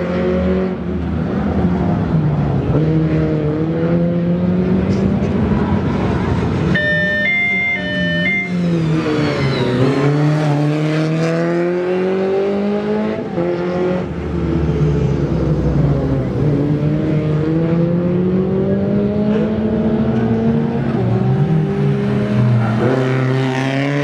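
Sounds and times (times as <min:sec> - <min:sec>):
rally car engine accelerating: 0:00.0 - 0:24.0
high two-tone signal: 0:06.7 - 0:10.5.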